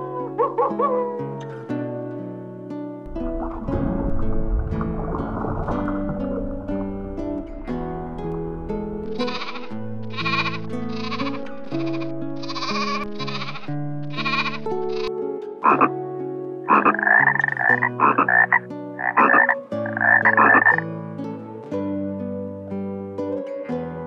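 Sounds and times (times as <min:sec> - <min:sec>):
soft background music: 0:00.0 - 0:24.0
lamb bleating: 0:09.1 - 0:15.1.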